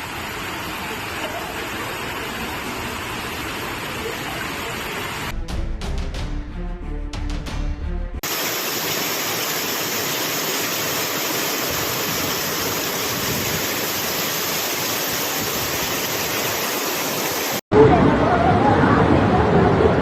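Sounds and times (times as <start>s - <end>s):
rushing floodwater: 0.0s - 5.3s, 8.2s - 20.0s.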